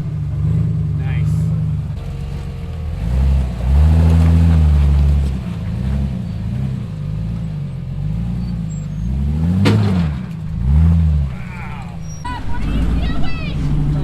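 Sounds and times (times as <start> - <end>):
engine revving: 0.0 - 14.0
sharp crack: 9.5 - 10.6.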